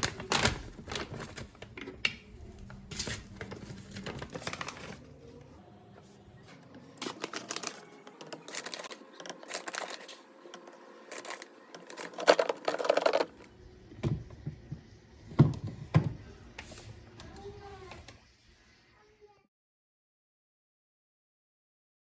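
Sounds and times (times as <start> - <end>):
small objects clicking and rattling: 11.1 - 13.4.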